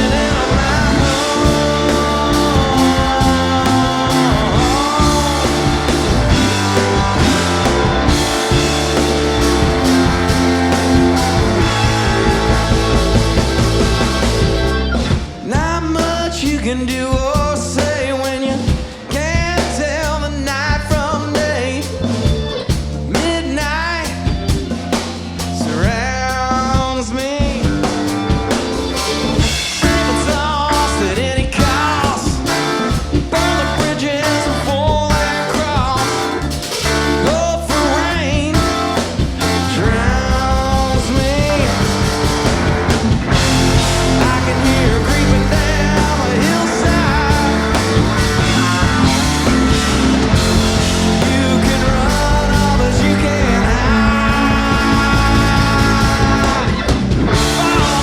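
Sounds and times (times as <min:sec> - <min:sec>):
person singing: 0:00.0 - 0:14.6, 0:29.0 - 0:58.0
live rock band playing: 0:00.0 - 0:58.0.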